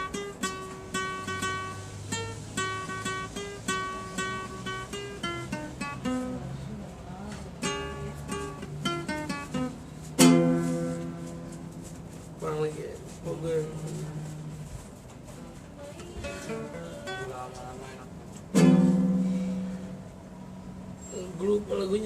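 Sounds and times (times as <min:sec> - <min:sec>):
guitar picked notes: 0:00.0 - 0:12.0, 0:15.8 - 0:21.2
guitar strummed chord: 0:18.5 - 0:20.7.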